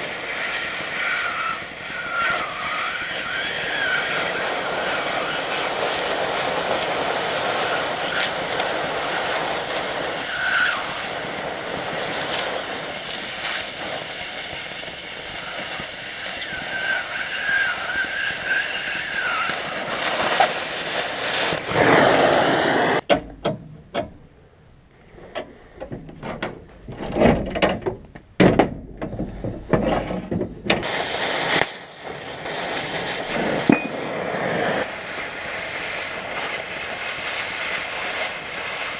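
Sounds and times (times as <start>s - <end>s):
cutting torch hissing: 0.0s - 23.0s, 30.8s - 38.9s.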